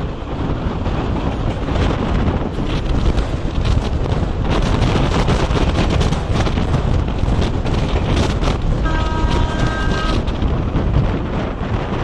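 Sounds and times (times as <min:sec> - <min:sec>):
train rumbling at speed: 0:00.0 - 0:12.0
wind buffeting microphone: 0:00.0 - 0:12.0
train horn: 0:08.8 - 0:10.3.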